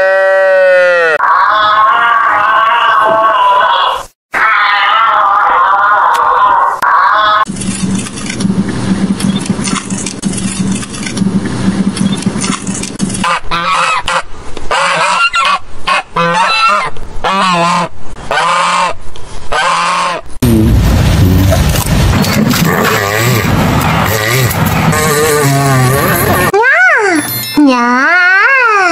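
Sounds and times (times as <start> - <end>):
goose honking: 13.2 - 20.2.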